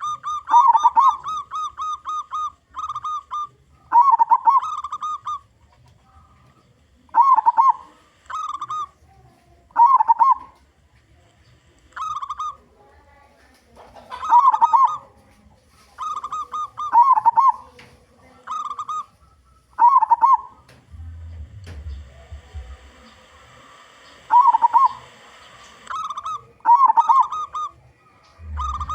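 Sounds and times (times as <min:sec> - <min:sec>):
dove cooing: 0:00.0 - 0:10.7, 0:12.0 - 0:12.7, 0:13.8 - 0:15.2, 0:15.8 - 0:28.9
low rumble: 0:20.9 - 0:23.2, 0:28.3 - 0:28.9.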